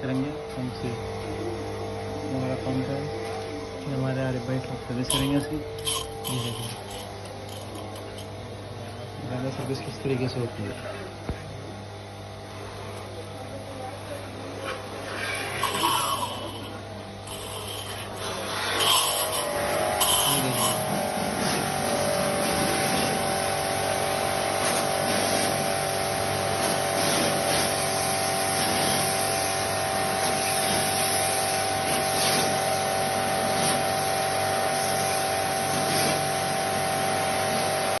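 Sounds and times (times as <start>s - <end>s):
pressure washer motor humming: 0.0s - 10.8s, 11.9s - 38.0s.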